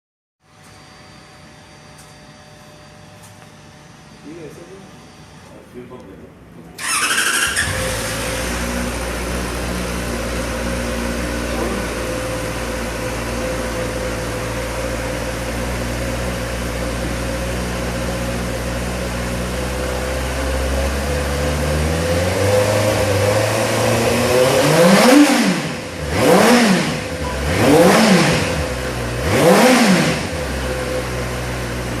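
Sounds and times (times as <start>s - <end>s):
motorcycle engine idling and revving: 6.8s - 32.0s.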